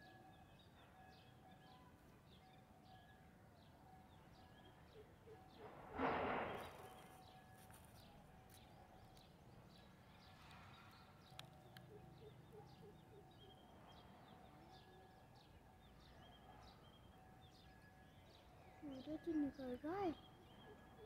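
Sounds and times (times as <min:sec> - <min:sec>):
small birds chirping: 0:00.0 - 0:21.0
loud rushing noise: 0:05.9 - 0:06.9.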